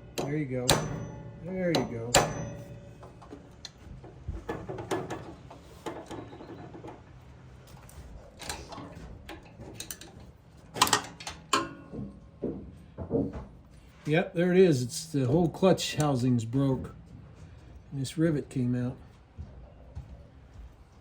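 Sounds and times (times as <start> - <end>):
metal parts clinking and knocking: 0.0 - 7.0, 7.7 - 11.9.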